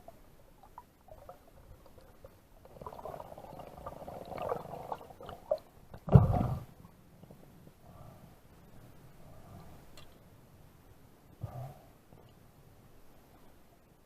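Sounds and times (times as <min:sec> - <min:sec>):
small clicks underwater: 0:09.9 - 0:10.2.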